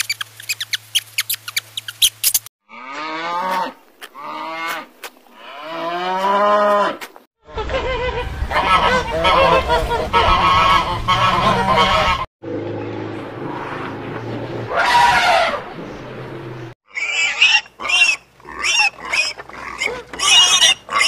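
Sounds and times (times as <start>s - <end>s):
geese honking: 8.4s - 12.3s.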